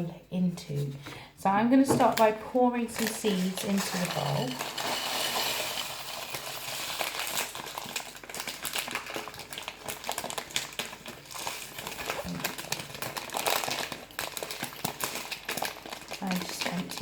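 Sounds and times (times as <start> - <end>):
seeds pouring into a bowl: 3.0 - 9.3.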